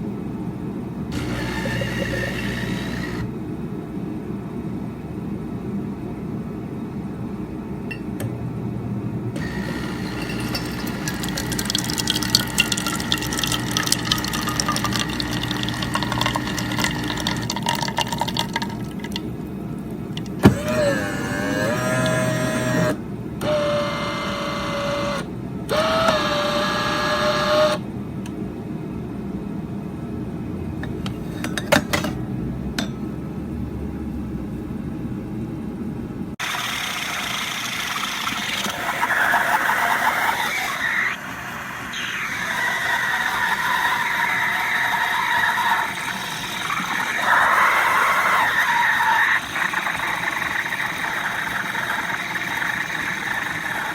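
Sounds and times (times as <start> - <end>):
espresso machine grinding: 1.1 - 3.3, 9.4 - 27.8, 36.4 - 41.3, 41.9 - 53.9
espresso machine pump hum: 1.1 - 3.4, 9.4 - 27.8, 36.4 - 53.9.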